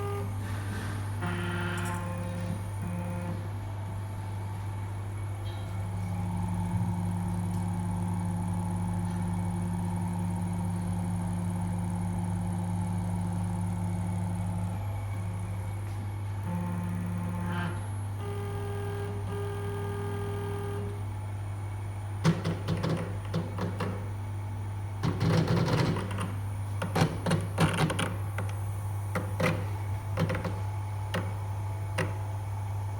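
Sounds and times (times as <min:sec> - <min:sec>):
stepper motor tones: 0:00.0 - 0:00.4, 0:01.1 - 0:03.5, 0:16.4 - 0:21.2
low electrical hum: 0:00.0 - 0:32.9.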